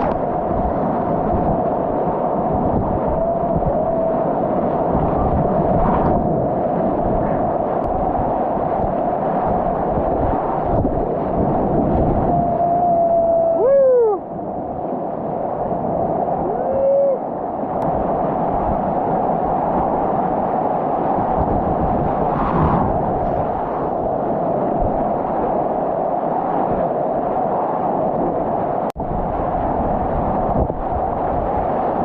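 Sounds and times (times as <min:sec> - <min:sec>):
whitewater rushing: 0:02.2 - 0:05.0.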